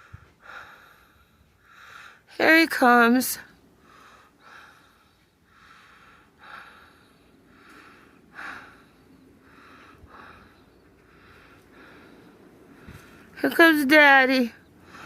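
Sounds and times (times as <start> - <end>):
breathing and sniffing: 3.8 - 13.4.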